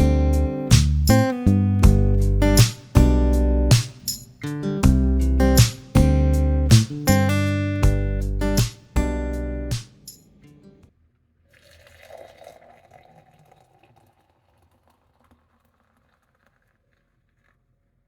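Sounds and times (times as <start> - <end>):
liquid being poured: 11.4 - 18.0.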